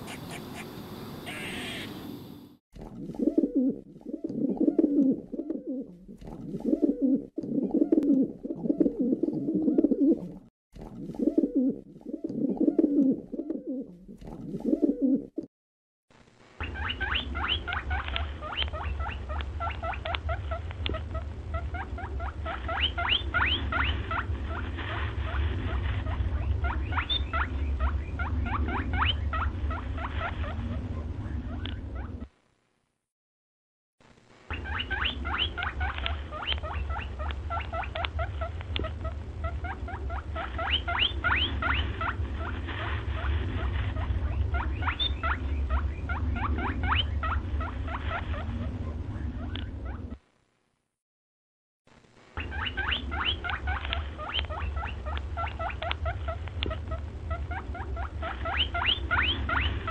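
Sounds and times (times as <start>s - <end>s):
small birds chirping: 0.0s - 2.6s, 34.5s - 38.4s, 39.4s - 48.4s, 52.4s - 56.3s, 57.5s - 59.9s
low steady rumble: 16.1s - 32.9s, 34.0s - 50.8s, 51.9s - 59.9s.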